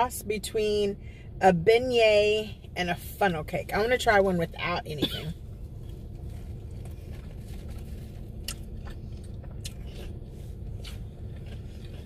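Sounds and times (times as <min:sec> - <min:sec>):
steady low hum: 0:00.0 - 0:12.0
person chewing food: 0:05.8 - 0:12.0.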